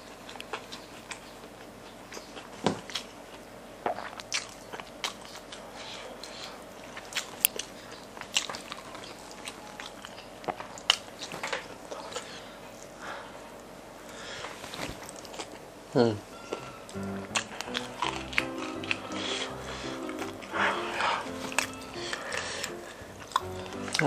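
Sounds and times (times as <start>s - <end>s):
chewing crispy food: 0.0s - 15.8s, 16.4s - 24.0s
wet mouth clicks: 3.8s - 6.4s, 21.2s - 23.8s.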